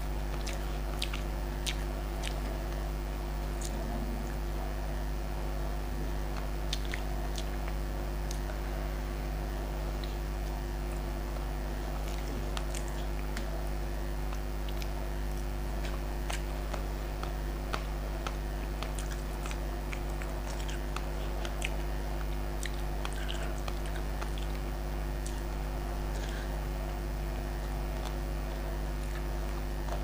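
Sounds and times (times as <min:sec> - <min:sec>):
low hum: 0:00.0 - 0:30.0
chewing and wet mouth sounds: 0:00.2 - 0:04.7, 0:05.6 - 0:09.0, 0:09.9 - 0:26.6, 0:27.3 - 0:30.0
small clicks and smacks: 0:14.3 - 0:26.4.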